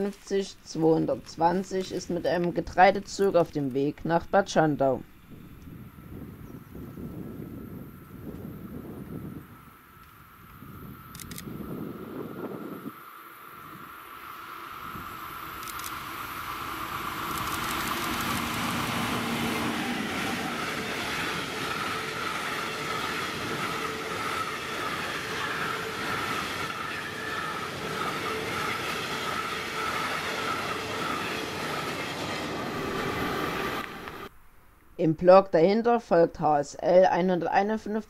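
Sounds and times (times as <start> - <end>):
freight train rumbling past: 0.0 - 34.4
wheels squealing: 14.5 - 34.3.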